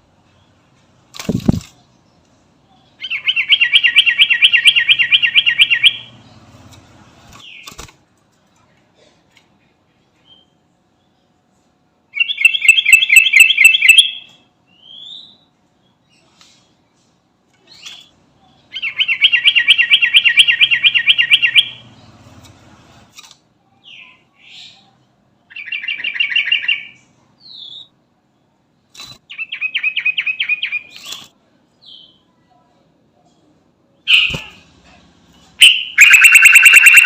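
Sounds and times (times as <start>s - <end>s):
bird chattering rattles: 1.2s - 1.8s.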